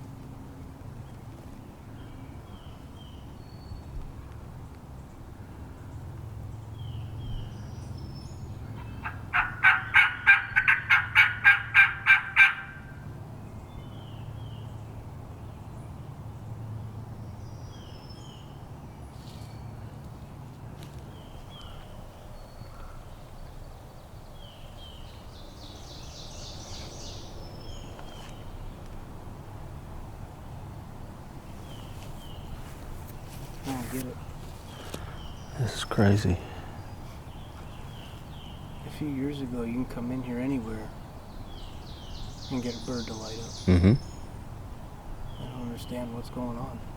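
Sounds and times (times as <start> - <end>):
faint songbird chirps: 1.0 - 9.2, 13.4 - 29.0, 31.5 - 46.9
turkey yelps: 8.8 - 12.9.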